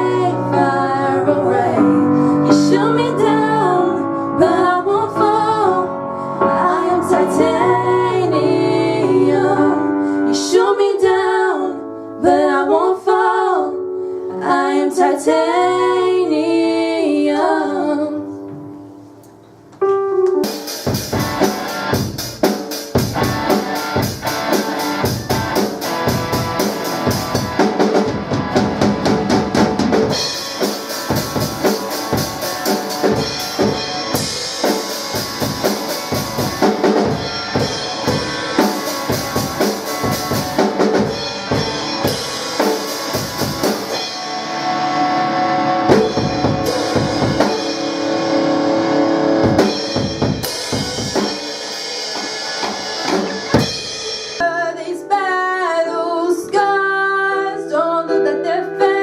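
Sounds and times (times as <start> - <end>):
instrumental band music: 18.5 - 54.6
drum kit beat: 20.2 - 44.6, 45.8 - 48.5, 49.2 - 54.4.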